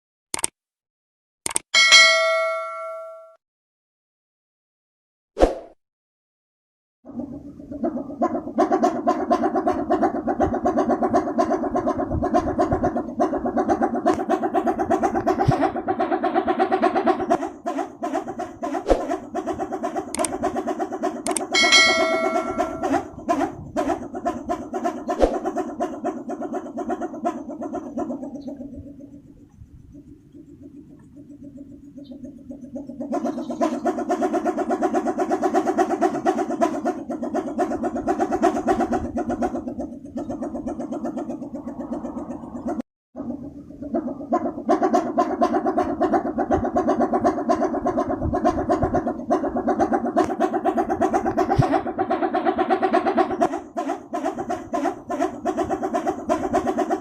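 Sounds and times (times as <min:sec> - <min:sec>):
high ringing tone: 0:01.8 - 0:03.4, 0:21.6 - 0:22.8
wooden propeller throbbing hum: 0:07.1 - 0:57.0.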